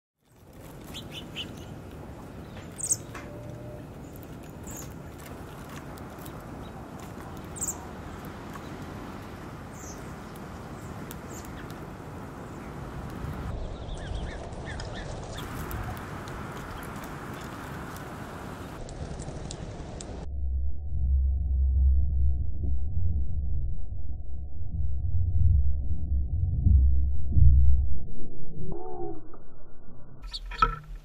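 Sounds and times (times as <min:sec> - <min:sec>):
small birds chirping: 0:00.2 - 0:18.8, 0:30.2 - 0:31.0.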